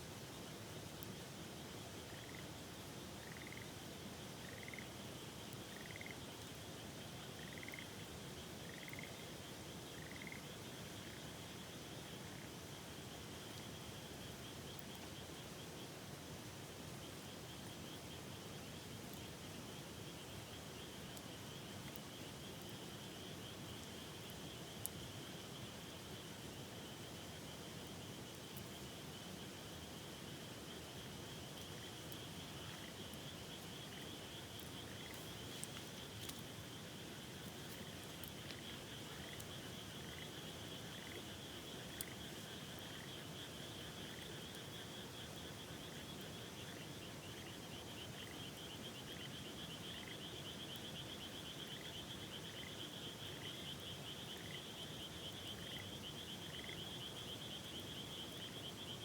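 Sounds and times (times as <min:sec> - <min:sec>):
frog chirp: 0:02.1 - 0:02.4, 0:03.2 - 0:03.7, 0:04.4 - 0:04.9, 0:05.7 - 0:06.2, 0:07.4 - 0:07.9, 0:08.6 - 0:09.2, 0:10.0 - 0:11.2, 0:32.5 - 0:36.5, 0:37.3 - 0:59.0
frogs trilling: 0:02.1 - 0:02.5, 0:03.2 - 0:03.7, 0:04.4 - 0:05.0, 0:05.7 - 0:06.3, 0:07.2 - 0:09.2, 0:09.9 - 0:11.3, 0:30.7 - 0:59.0.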